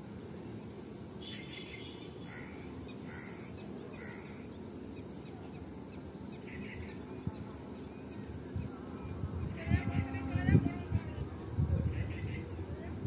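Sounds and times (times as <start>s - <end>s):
birds giving short calls: 1.2s - 4.6s.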